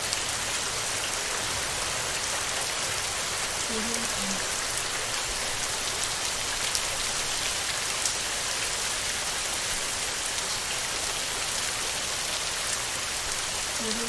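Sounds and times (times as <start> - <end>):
heavy rain on a tin roof: 0.0 - 14.0.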